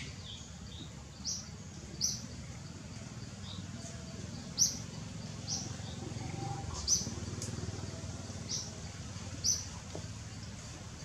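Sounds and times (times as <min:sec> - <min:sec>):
bird chirping: 0:00.0 - 0:10.9.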